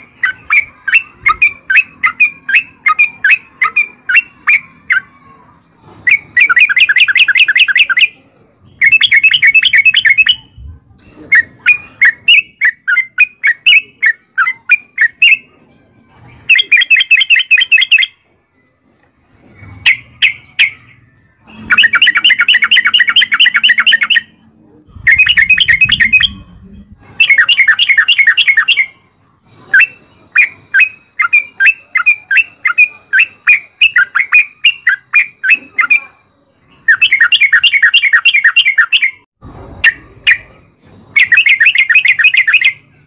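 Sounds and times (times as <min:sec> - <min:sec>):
bright bird chirps: 0:00.0 - 0:05.3, 0:06.1 - 0:29.1, 0:29.7 - 0:40.5, 0:41.2 - 0:43.0
bird chattering rolls: 0:18.9 - 0:29.0.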